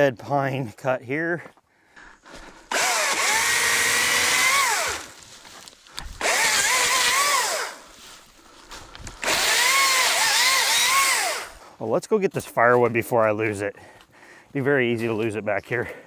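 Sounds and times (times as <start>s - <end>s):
electric chainsaw cutting wood: 2.5s - 5.2s, 5.9s - 7.9s, 9.0s - 11.6s.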